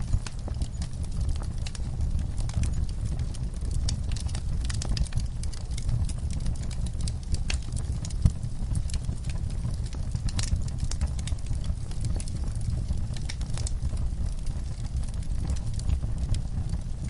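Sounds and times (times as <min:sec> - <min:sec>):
low steady rumble: 0:00.0 - 0:17.0
wood fire crackling: 0:00.0 - 0:17.0
sharp pops and snaps: 0:10.2 - 0:11.4.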